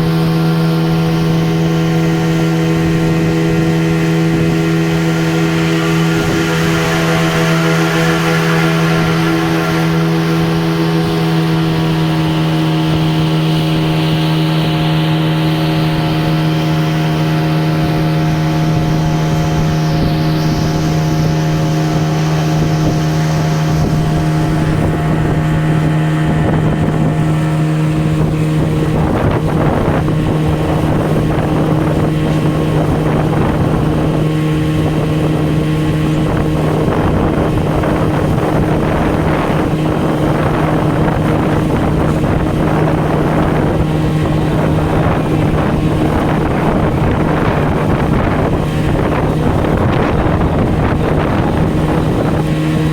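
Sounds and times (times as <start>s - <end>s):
boat engine humming: 0.0s - 52.9s
wind on microphone: 0.0s - 52.9s.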